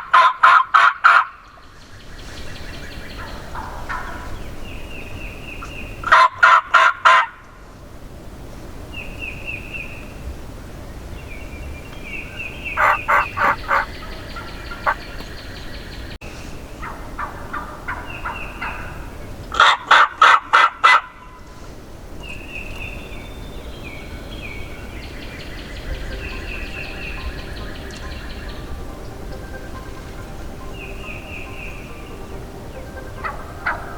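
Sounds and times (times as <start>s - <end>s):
turkey gobbling: 0.0s - 1.4s, 3.2s - 4.4s, 6.0s - 7.3s, 12.8s - 15.3s, 16.8s - 21.1s, 29.5s - 33.9s
small birds calling: 11.2s - 16.2s, 22.2s - 33.9s.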